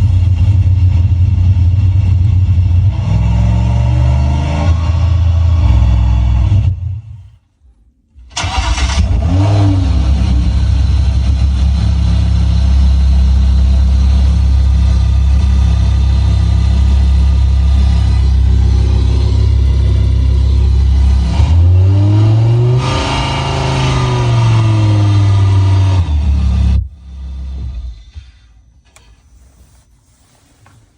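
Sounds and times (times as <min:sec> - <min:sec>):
synthetic engine sound: 0:12.6 - 0:28.0.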